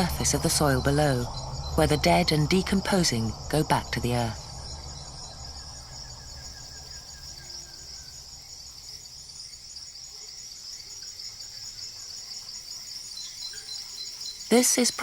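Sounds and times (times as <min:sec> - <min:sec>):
faint low hum: 0:00.0 - 0:08.9
insects droning: 0:00.0 - 0:15.0.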